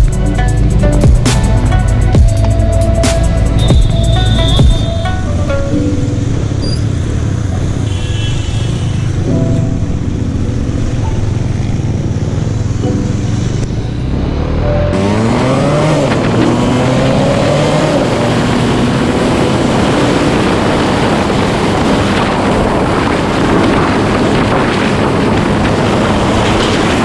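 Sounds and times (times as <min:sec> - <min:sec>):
motorcycle engine accelerating: 0:09.5 - 0:27.0
wind rush: 0:15.0 - 0:27.0.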